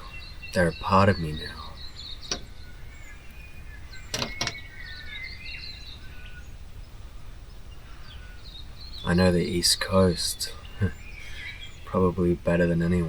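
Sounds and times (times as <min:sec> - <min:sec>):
wild birds chirping and whistling: 0:00.0 - 0:13.0
sharp clicks: 0:02.2 - 0:02.7, 0:04.1 - 0:04.6.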